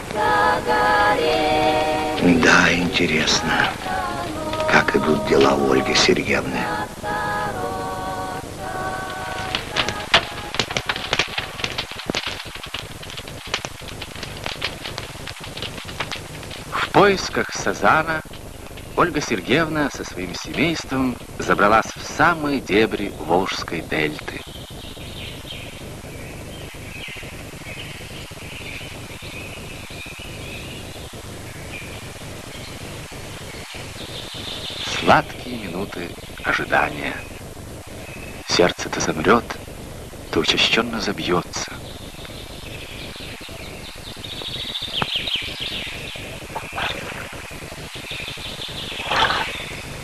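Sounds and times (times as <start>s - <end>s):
birds chirping: 0.0s - 50.0s
film soundtrack hiss and hum: 0.0s - 50.0s
small bird twittering: 41.9s - 50.0s.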